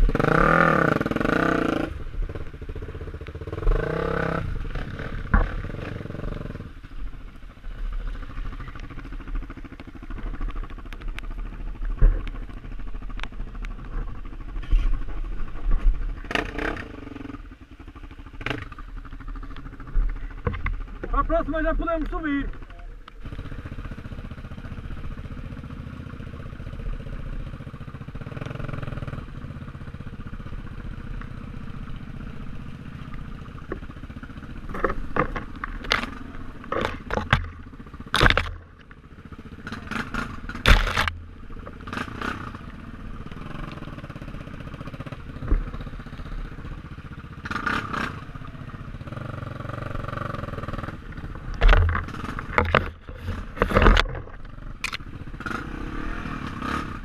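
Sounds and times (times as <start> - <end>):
motorcycle engine running: 0.0 - 57.0
sharp knocks and clattering: 34.7 - 38.8, 51.5 - 55.0.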